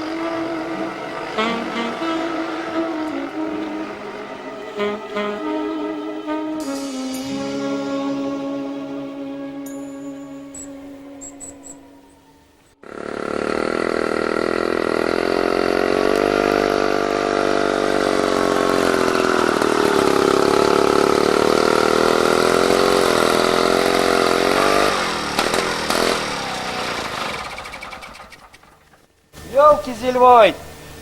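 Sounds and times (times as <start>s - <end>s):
engine running and sputtering: 0.0s - 5.5s, 12.8s - 29.2s.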